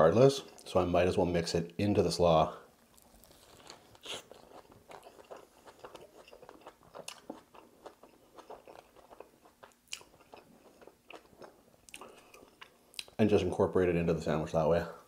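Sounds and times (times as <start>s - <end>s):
chewing crackles: 2.8s - 13.2s
biting into sandwich: 2.9s - 13.1s.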